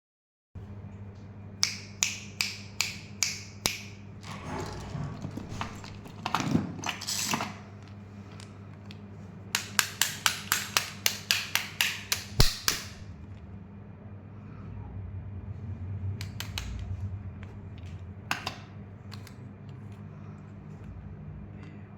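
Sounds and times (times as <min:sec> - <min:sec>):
faint low hum: 0:12.3 - 0:21.9.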